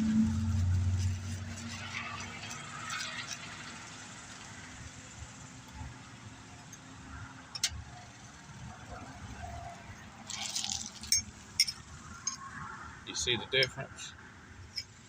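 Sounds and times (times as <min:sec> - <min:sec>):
vehicle engine: 0:00.0 - 0:15.0
handling small metal parts: 0:10.3 - 0:12.4.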